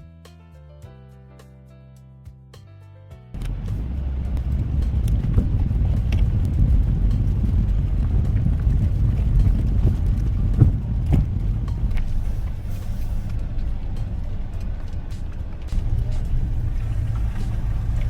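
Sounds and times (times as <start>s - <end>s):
car engine and road rumble: 3.4s - 18.0s.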